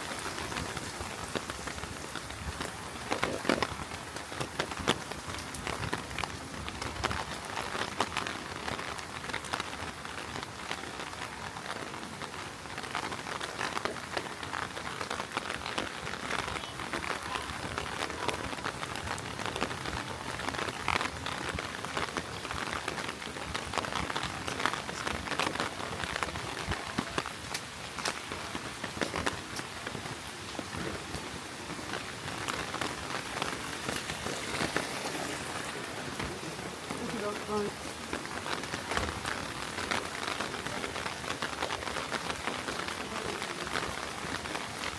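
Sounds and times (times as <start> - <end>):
heavy rain pattering: 0.0 - 44.9.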